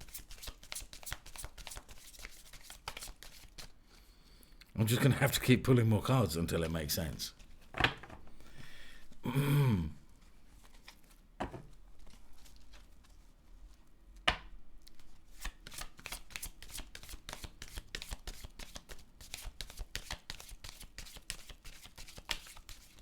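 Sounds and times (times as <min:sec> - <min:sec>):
cards being shuffled: 0:00.0 - 0:03.7, 0:15.0 - 0:23.0.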